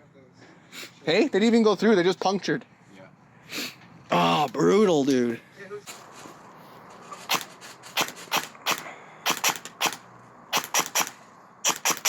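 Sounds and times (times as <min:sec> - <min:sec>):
airsoft gun shots: 0:07.3 - 0:12.0.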